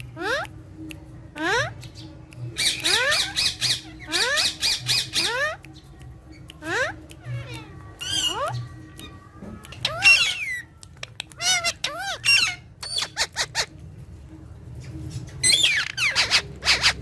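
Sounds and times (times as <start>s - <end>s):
parrot calling: 1.4s - 1.8s, 2.6s - 5.6s, 9.8s - 13.7s, 15.4s - 17.0s.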